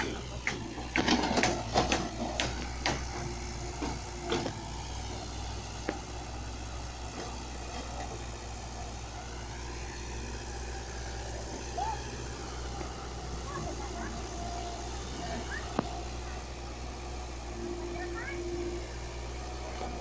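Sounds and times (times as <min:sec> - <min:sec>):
sharp knocks and clanks: 0:00.0 - 0:04.6
backhoe engine humming: 0:00.0 - 0:20.0.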